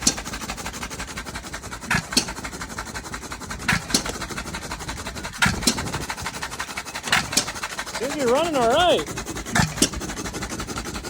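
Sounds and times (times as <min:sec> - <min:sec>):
engine fast ticking: 0:00.0 - 0:11.0
engine firing bang and thump: 0:05.4 - 0:06.5.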